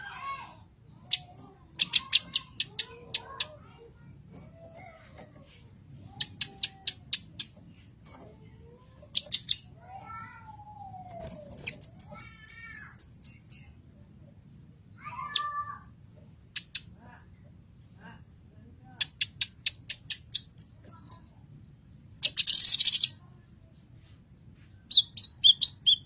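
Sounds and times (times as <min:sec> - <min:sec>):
bird singing: 0:10.5 - 0:13.7, 0:24.9 - 0:26.0.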